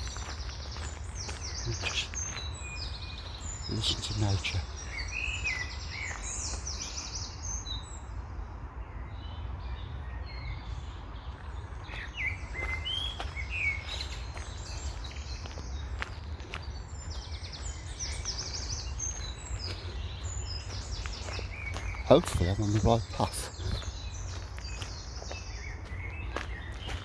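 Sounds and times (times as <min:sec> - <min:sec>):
songbirds singing: 0:00.0 - 0:27.0.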